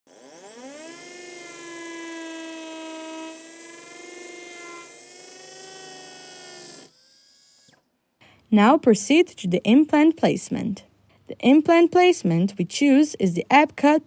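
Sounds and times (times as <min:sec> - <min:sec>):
surgical drill whine: 0:00.1 - 0:07.8.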